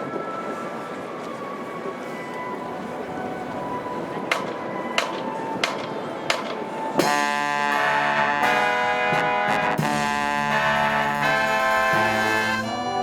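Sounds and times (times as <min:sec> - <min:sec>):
wind noise on microphone: 0:00.0 - 0:13.0
brass marching band playing chords: 0:07.0 - 0:13.0.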